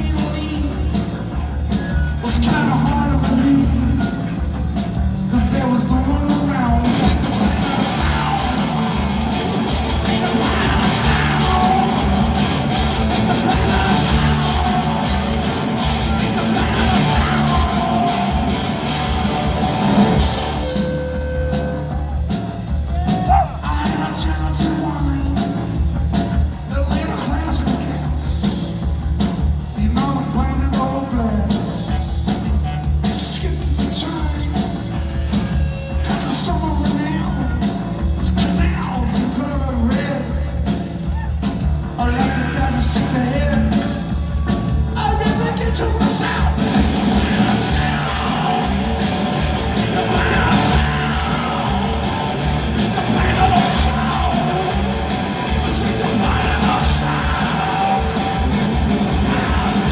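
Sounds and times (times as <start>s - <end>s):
bass guitar: 0.0s - 59.9s
drums: 0.0s - 59.9s
electric guitars: 0.0s - 59.9s
person singing: 5.2s - 25.6s, 42.0s - 59.9s.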